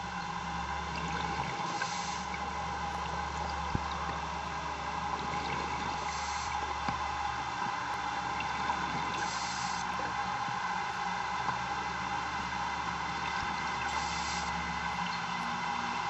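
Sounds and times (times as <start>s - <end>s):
underwater noise: 0.0s - 16.0s.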